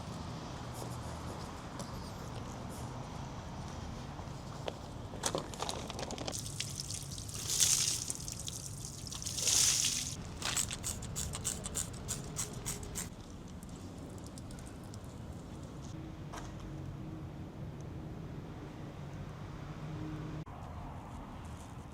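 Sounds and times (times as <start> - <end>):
water dripping and pattering: 6.3 - 12.0
water spray hissing: 6.4 - 13.1.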